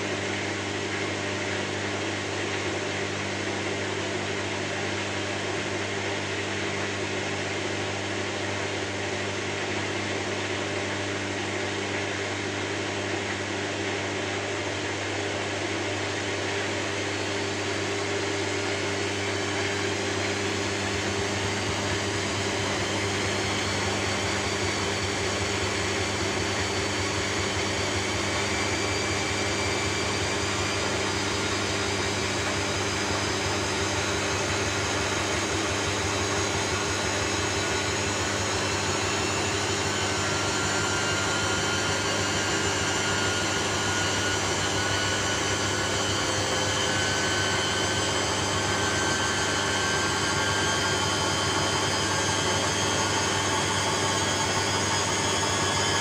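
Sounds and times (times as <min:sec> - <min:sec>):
machine whirring hum and hiss: 0:00.0 - 0:56.0
faint high rising whines: 0:16.8 - 0:56.0.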